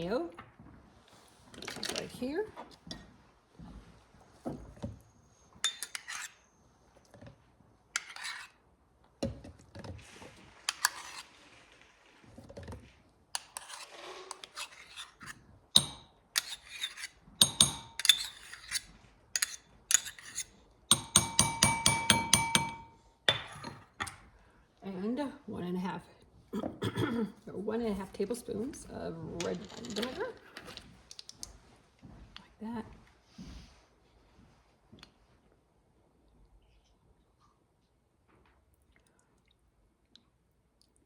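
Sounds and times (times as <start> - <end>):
utensil scraping and knocking: 5.6 - 6.4, 8.0 - 8.6, 9.2 - 24.2
ringing clinks against a dish: 20.9 - 23.0.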